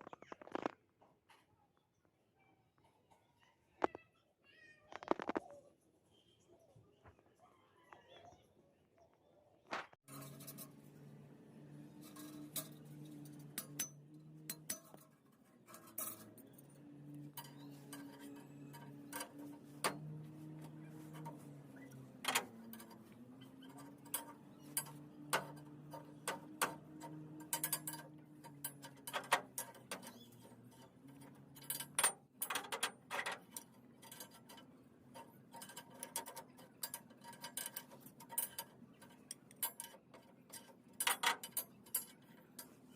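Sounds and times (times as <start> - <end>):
machine hum: 10.1 - 39.7.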